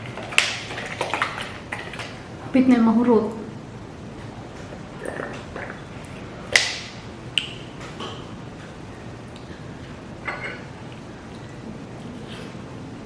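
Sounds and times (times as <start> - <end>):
tableware clinking: 10.2 - 10.7.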